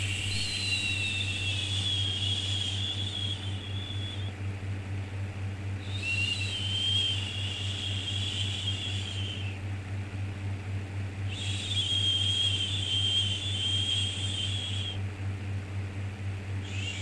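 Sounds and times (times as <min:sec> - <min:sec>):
low hum: 0:00.0 - 0:04.3
white noise: 0:00.0 - 0:04.4.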